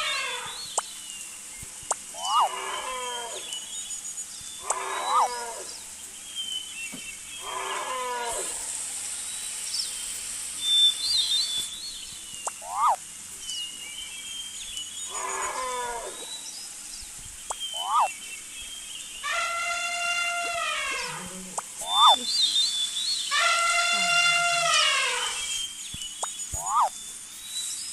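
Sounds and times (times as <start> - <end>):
animal calling with falling pitch: 0.0 - 0.8, 2.0 - 3.6, 4.6 - 5.8, 7.4 - 8.7, 12.5 - 13.0, 15.1 - 16.3, 17.6 - 18.2, 19.2 - 22.6, 23.3 - 25.6, 26.6 - 26.9
faint high bird chirps: 0.0 - 27.9.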